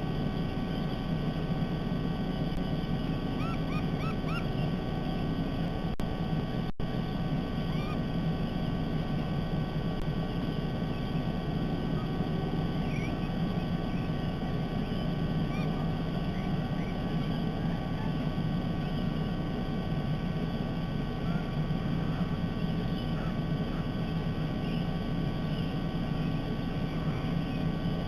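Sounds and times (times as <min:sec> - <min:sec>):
low outdoor rumble: 0:00.0 - 0:28.0
faint bird chirps: 0:00.3 - 0:01.4, 0:02.5 - 0:05.7, 0:07.5 - 0:09.4, 0:10.2 - 0:28.0.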